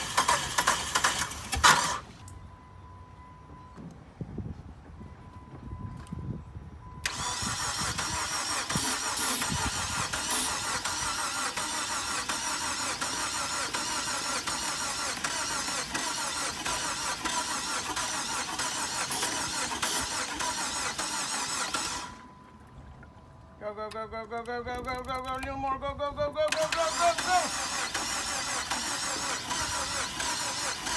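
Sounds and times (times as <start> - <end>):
engine cranking without starting: 0.0 - 2.3, 7.0 - 22.3, 26.4 - 30.9.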